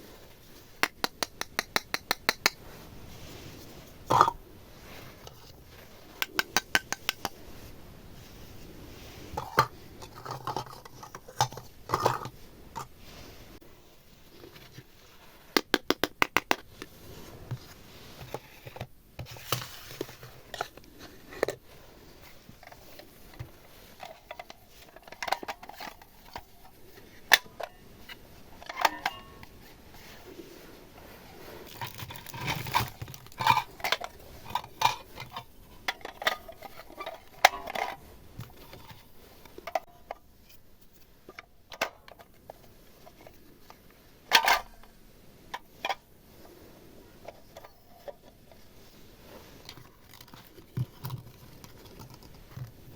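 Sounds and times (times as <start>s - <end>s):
crinkling: 0.0s - 52.9s
plastic toys clicking and tapping: 0.8s - 2.6s, 6.1s - 7.4s, 15.6s - 17.0s, 22.6s - 27.7s, 49.7s - 52.9s.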